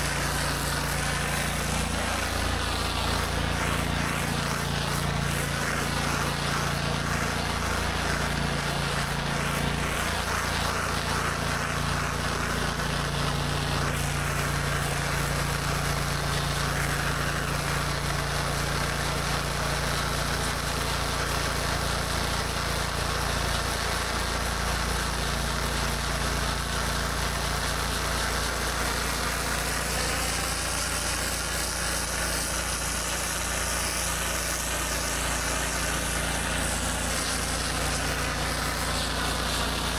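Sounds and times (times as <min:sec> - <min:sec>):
pressure washer engine running: 0:00.0 - 0:39.9
water spraying on concrete: 0:00.0 - 0:39.9.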